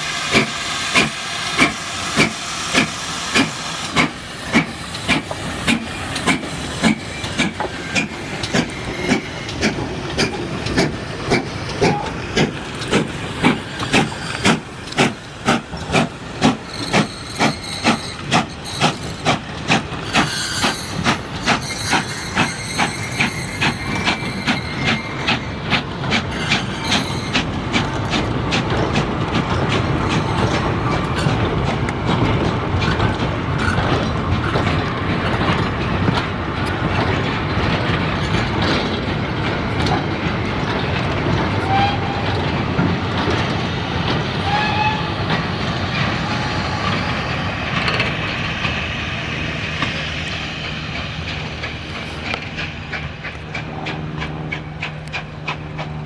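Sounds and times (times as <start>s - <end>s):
steam hissing: 0.0s - 32.8s
steam locomotive chuffing: 0.0s - 56.0s.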